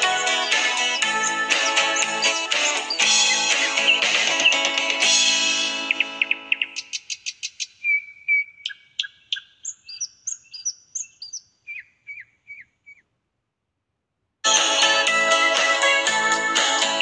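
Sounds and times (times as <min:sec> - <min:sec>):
music: 0:00.0 - 0:06.6, 0:14.4 - 0:17.0
birds chirping and whistling: 0:00.0 - 0:13.0.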